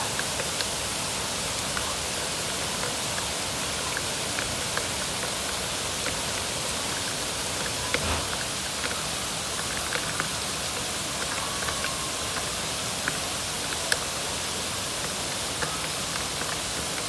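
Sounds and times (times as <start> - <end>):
steady rain hiss: 6.5 - 8.7.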